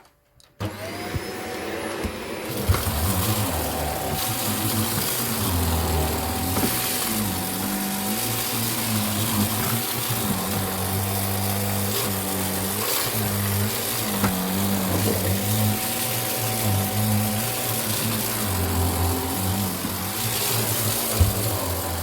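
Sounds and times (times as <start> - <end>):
vacuum cleaner motor hum: 0.6 - 22.0.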